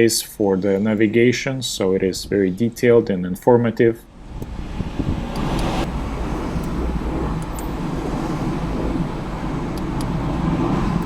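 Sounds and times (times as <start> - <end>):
vehicle rumble with hiss: 4.2 - 11.0.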